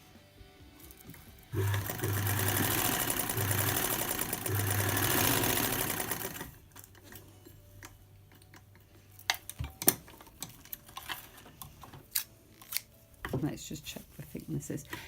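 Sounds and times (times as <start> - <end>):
sewing machine stitching: 1.5 - 6.6.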